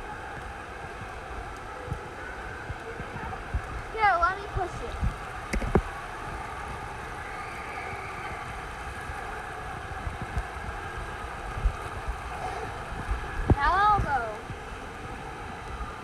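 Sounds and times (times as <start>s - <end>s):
rushing water: 0.0s - 16.0s
thumps on microphone: 5.5s - 5.9s.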